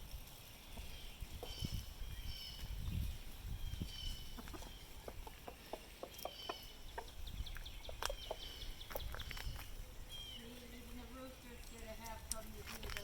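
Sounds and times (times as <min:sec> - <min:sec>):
high thin bird chirps: 0:00.4 - 0:10.7
chickens clucking softly: 0:04.2 - 0:09.2.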